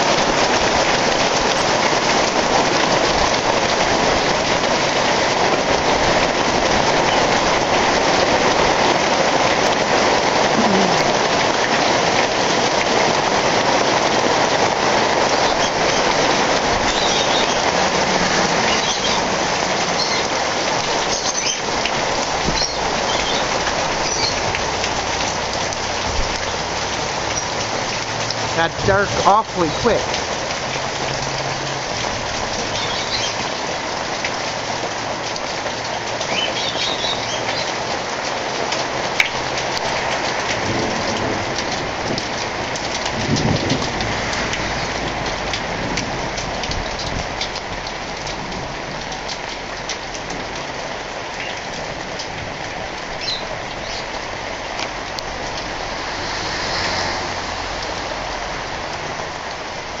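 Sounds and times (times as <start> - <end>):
heavy rain pouring: 0.0 - 60.0
thunder rumbling: 40.3 - 47.8.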